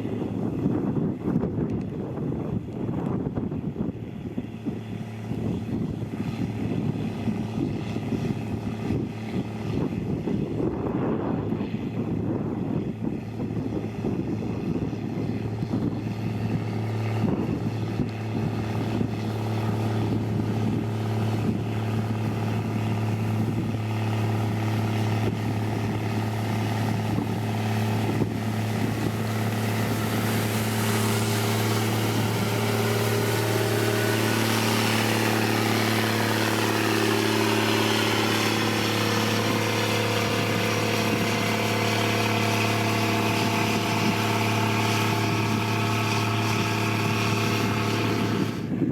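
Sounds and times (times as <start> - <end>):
diesel machinery engine hum: 0.0 - 48.9
hiss and gliding whine: 16.5 - 48.7.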